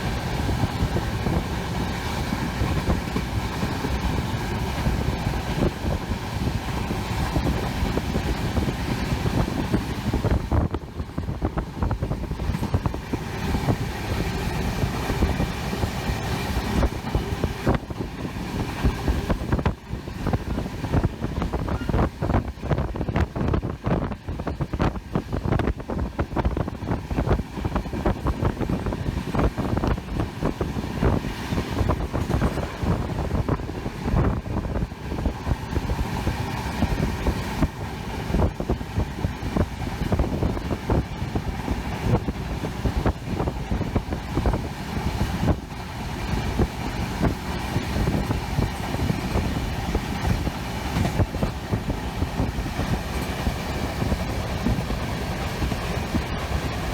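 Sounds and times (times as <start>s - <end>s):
train rumbling: 0.0s - 56.9s
wheels clattering over rails: 0.0s - 56.9s
wind noise: 0.0s - 56.9s.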